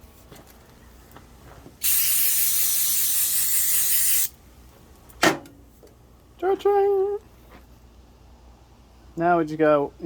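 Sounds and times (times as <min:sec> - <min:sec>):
aerosol can spraying: 0:01.8 - 0:04.3.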